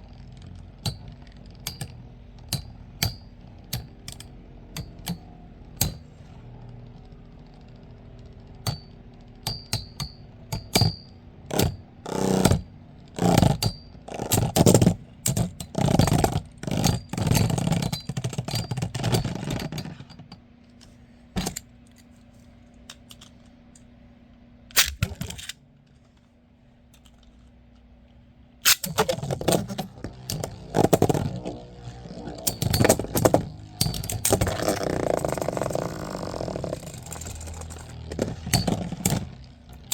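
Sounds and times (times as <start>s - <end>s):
spinning tops clattering together: 28.6s - 39.9s.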